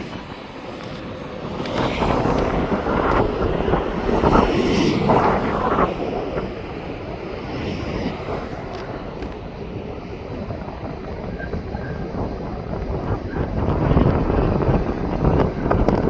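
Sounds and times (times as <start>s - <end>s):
jet engine rumble: 0.0s - 16.0s
wind buffeting microphone: 0.0s - 16.0s.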